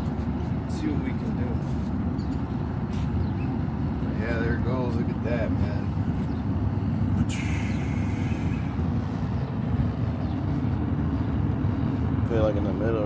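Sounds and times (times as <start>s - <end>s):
furnace burner flame roar: 0.0s - 13.0s
descending hiss: 7.2s - 9.0s.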